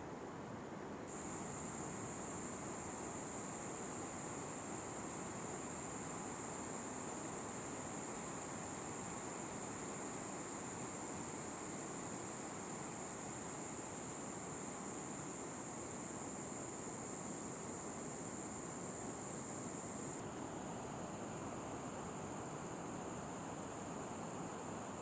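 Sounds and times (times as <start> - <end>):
low even hiss: 1.1 - 20.2
insect chorus drone: 1.1 - 21.8.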